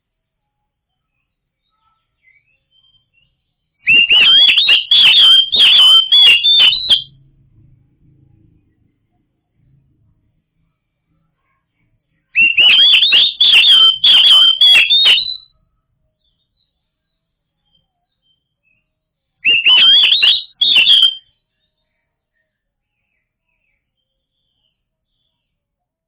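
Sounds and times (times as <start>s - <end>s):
bird singing whistled phrases: 3.9s - 7.1s, 12.4s - 15.4s, 19.4s - 21.2s.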